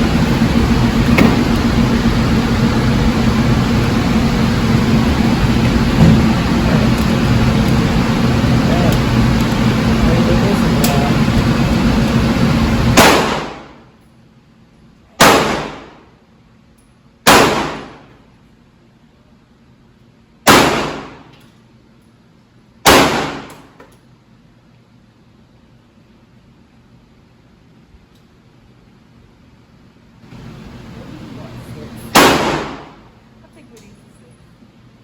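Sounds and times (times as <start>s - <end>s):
steady loud noise: 0.0s - 13.9s, 15.1s - 16.2s, 17.2s - 18.1s, 30.2s - 33.3s
gunshots with short echo: 12.9s - 13.7s, 15.2s - 16.0s, 17.3s - 18.0s, 20.5s - 21.3s, 22.9s - 23.5s, 32.1s - 33.0s.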